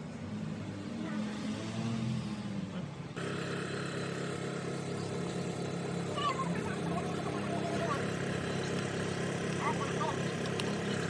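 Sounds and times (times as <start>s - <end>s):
car engine running: 3.1s - 11.0s.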